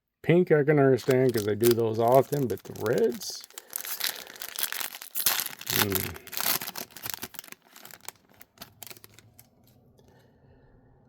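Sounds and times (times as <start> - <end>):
foil wrapper crinkling: 1.0 - 9.7.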